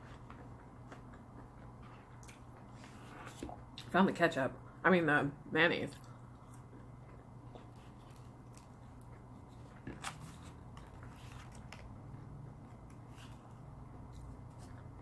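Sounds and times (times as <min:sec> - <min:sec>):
person chewing: 0:00.0 - 0:03.8.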